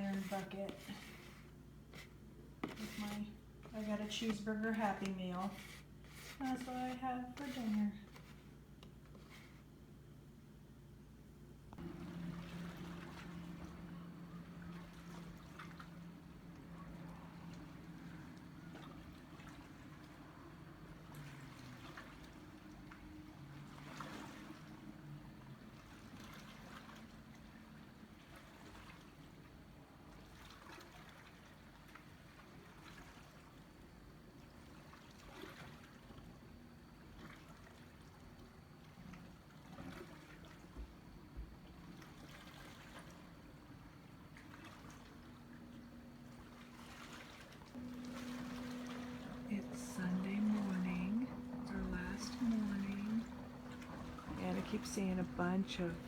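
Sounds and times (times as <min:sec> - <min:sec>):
distant boat motor hum: 0:00.0 - 0:02.1, 0:11.8 - 0:27.9, 0:35.8 - 0:56.0
lake water lapping: 0:00.0 - 0:08.4, 0:11.8 - 0:56.0.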